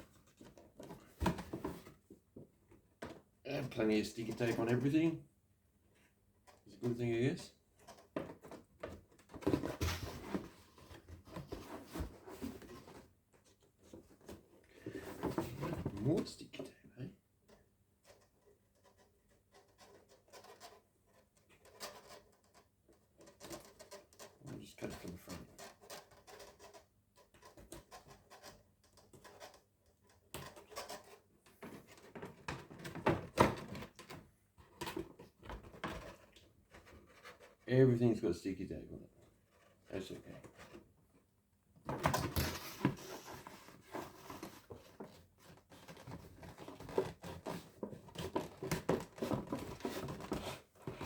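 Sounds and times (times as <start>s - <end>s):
packaging rustling and scraping: 41.9s - 51.0s.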